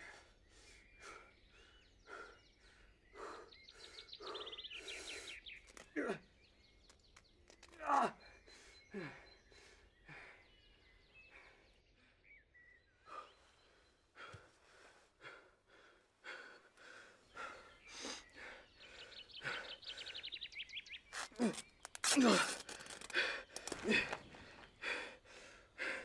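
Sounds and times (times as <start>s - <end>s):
small ticks: 5.5s - 6.0s, 21.1s - 24.2s.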